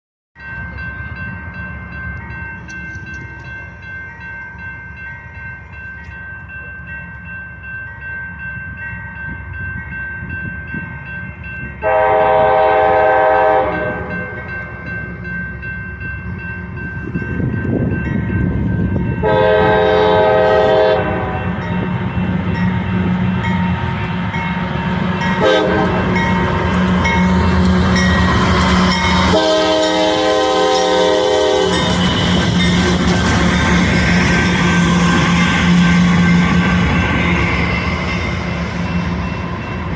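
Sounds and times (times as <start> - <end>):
locomotive air horn blasts: 11.8 - 14.4, 19.2 - 21.6, 25.4 - 26.2, 29.2 - 33.1.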